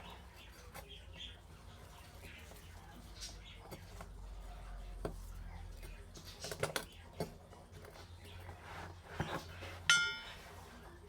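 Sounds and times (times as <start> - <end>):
low steady hum: 9.6 - 11.0.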